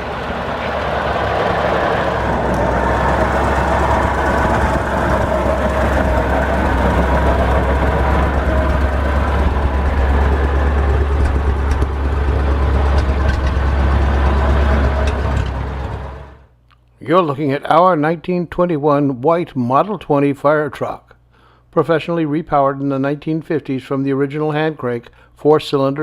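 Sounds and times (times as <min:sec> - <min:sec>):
truck engine running: 0:00.0 - 0:16.5.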